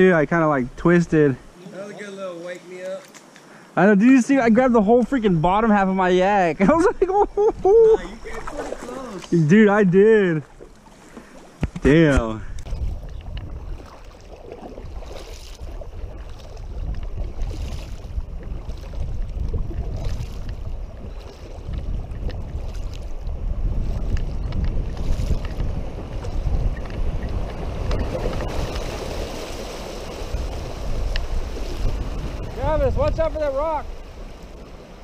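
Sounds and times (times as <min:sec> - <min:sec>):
water splashing and rushing: 0:04.0 - 0:35.0
wind rumbling on microphone: 0:04.6 - 0:08.8, 0:11.4 - 0:35.0.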